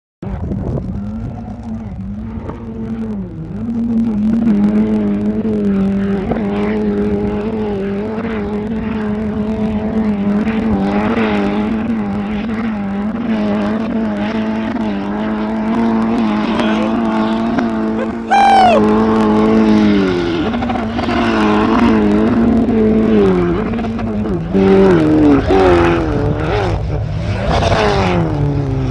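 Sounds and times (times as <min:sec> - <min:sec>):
truck engine revving high: 0:14.4 - 0:28.9.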